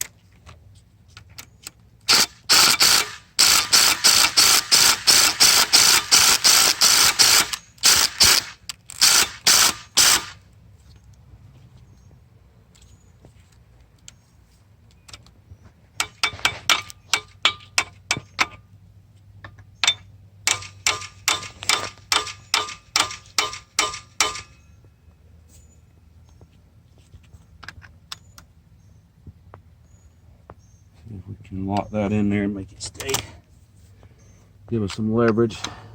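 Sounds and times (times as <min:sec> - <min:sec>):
hammer striking metal: 0:19.9 - 0:24.7.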